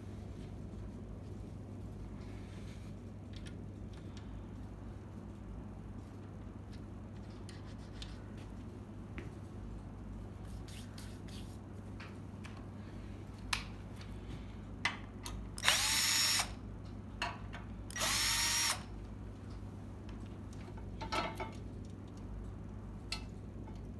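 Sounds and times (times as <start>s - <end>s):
power drill spinning up: 15.6s - 16.6s, 17.9s - 18.9s.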